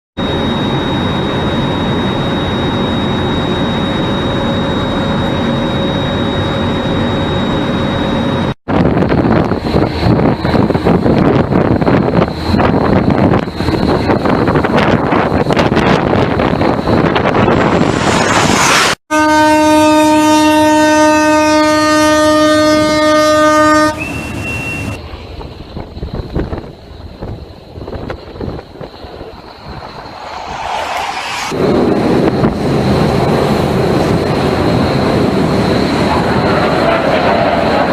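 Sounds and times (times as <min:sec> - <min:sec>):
jet engine running: 0:00.2 - 0:20.6, 0:27.2 - 0:37.9
wind noise: 0:08.7 - 0:19.0, 0:25.0 - 0:37.9
ship's horn blast: 0:19.1 - 0:25.0.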